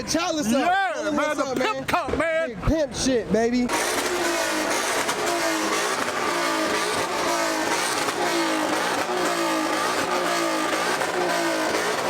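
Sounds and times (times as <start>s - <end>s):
car engine revving: 3.7s - 12.0s.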